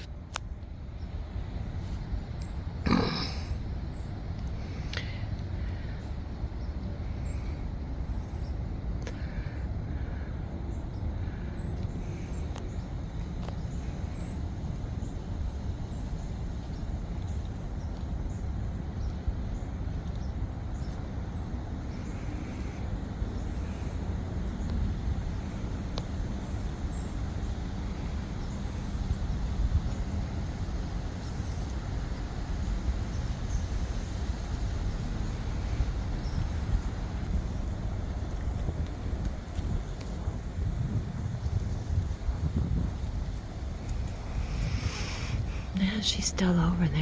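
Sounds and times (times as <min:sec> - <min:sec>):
wind rumble on microphone: 0:00.0 - 0:47.0
breeze hiss: 0:43.2 - 0:47.0.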